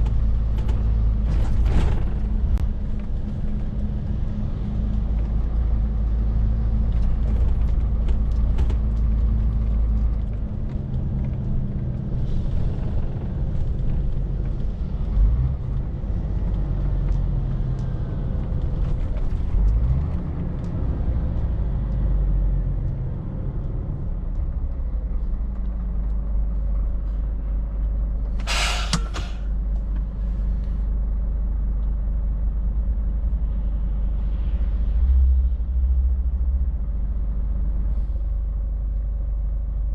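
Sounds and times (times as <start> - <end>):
air release hiss: 28.4 - 29.5
truck diesel engine running: 28.5 - 29.5.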